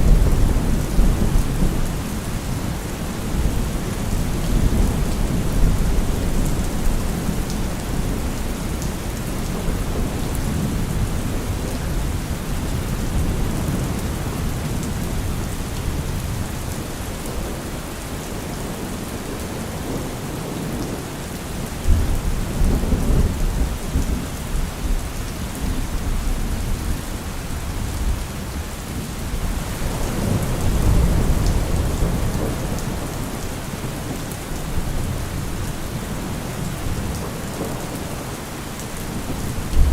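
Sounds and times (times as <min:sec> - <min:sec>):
steady rain falling: 0:00.0 - 0:39.9
thunder rumbling: 0:29.3 - 0:39.9.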